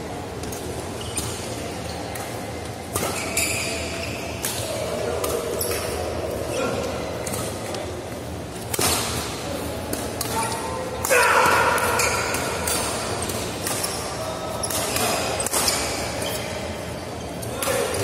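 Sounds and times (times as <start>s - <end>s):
racket hitting shuttlecock: 8.6s - 16.1s.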